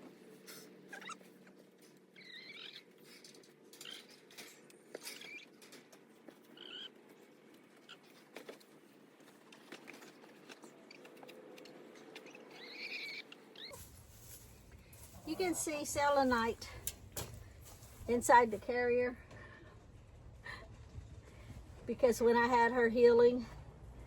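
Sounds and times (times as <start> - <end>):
chickens pecking and scratching: 0.0 - 18.8.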